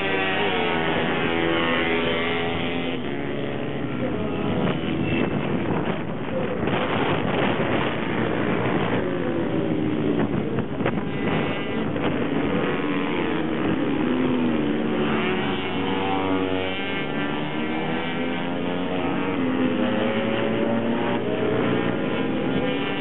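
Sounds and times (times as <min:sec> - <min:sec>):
minibike racing engines: 0:00.0 - 0:23.0.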